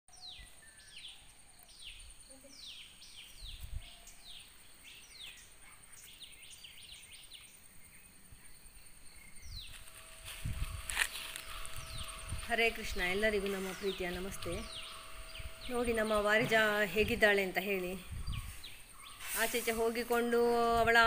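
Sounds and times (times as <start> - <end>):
thin high-pitched whine: 9.6 - 21.0.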